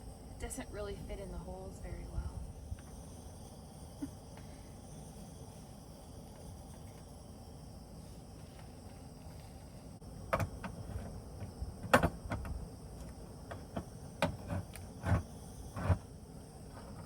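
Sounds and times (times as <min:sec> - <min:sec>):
knocks and clicks of objects: 0:10.3 - 0:10.8.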